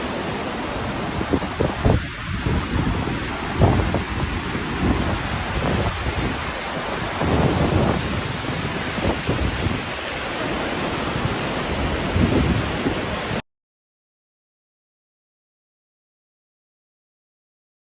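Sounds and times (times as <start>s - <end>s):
heavy rain pouring: 0.0s - 13.4s.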